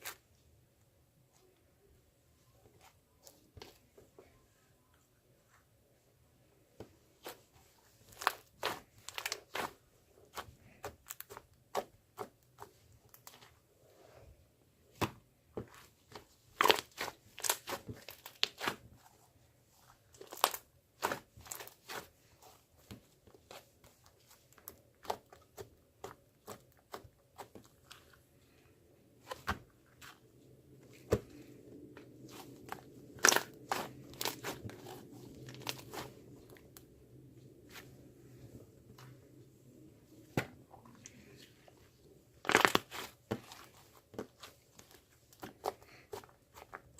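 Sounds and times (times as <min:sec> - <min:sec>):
crinkling crunches: 0:08.1 - 0:09.8, 0:16.5 - 0:18.8, 0:20.1 - 0:22.1, 0:30.8 - 0:36.8, 0:42.4 - 0:46.9.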